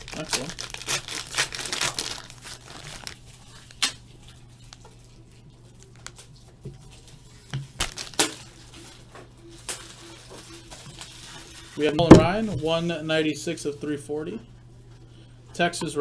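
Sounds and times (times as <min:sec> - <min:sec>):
steady low hum: 0:08.4 - 0:16.0.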